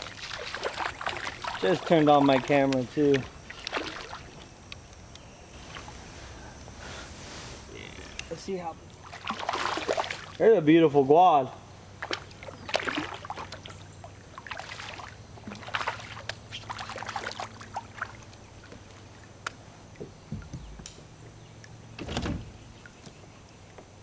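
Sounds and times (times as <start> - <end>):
swishes and scrapes: 5.6 - 7.8.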